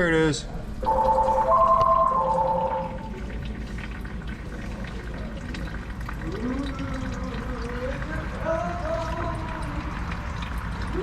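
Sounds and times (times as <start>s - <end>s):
short melody of steady tones: 0.8s - 3.2s
oil trickling into bucket: 0.8s - 11.0s.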